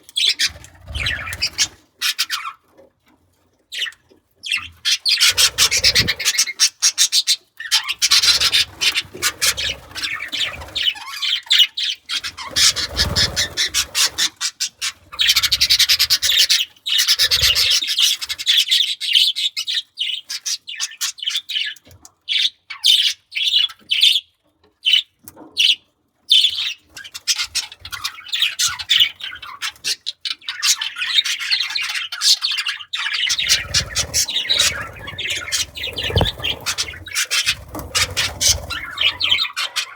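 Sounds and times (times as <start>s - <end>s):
budgerigars chattering and warbling: 0.1s - 2.6s, 4.5s - 24.2s, 25.6s - 39.9s
dull thumps: 35.9s - 36.8s.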